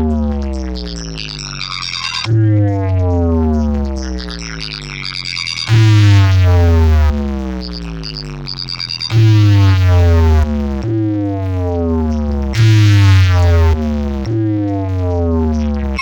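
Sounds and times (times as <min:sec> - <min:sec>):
stuttering high chirps: 0:00.0 - 0:09.7
heavy bass blasts: 0:00.0 - 0:16.0.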